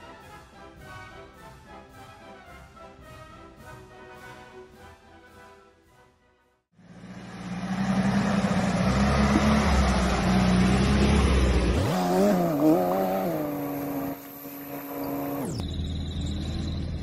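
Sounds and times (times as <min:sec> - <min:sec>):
car engine running: 0:06.8 - 0:17.0.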